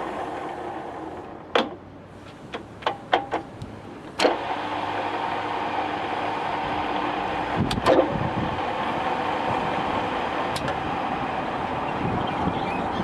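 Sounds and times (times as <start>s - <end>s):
sharp clicks and clunks: 1.5s - 4.5s, 7.6s - 8.2s, 10.5s - 10.8s
lathe running with steady hum: 4.3s - 12.0s.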